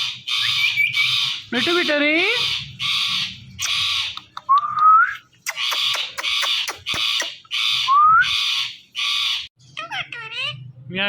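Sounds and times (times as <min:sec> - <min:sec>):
parrot squawking: 0:00.0 - 0:04.5, 0:05.4 - 0:10.7.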